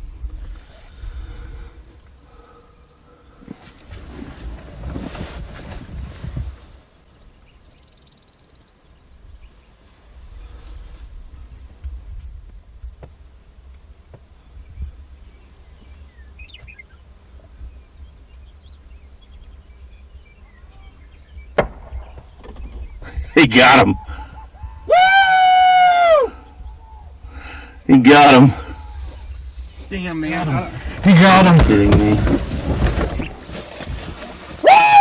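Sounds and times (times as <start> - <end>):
low wind rumble on microphone: 0.0 - 2.2, 3.5 - 6.8, 9.2 - 25.2, 26.1 - 27.9, 28.6 - 34.7
high-pitched insect trill: 7.0 - 31.4.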